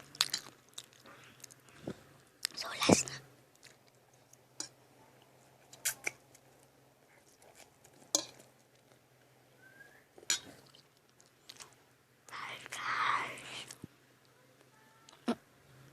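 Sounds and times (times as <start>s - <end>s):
faint low hum: 0.0s - 15.9s.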